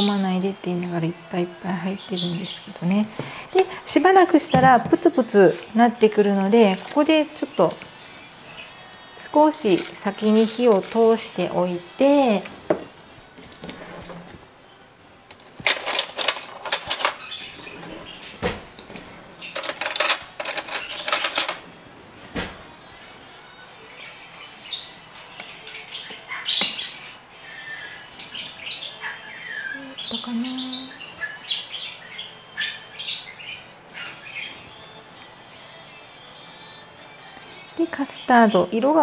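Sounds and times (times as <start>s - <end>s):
small birds chirping: 23.8s - 36.8s.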